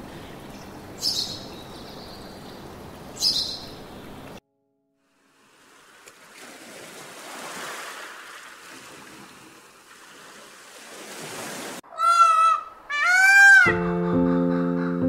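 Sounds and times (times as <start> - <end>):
surf washing on beach: 5.2 - 11.8
peacock calling: 11.8 - 14.4.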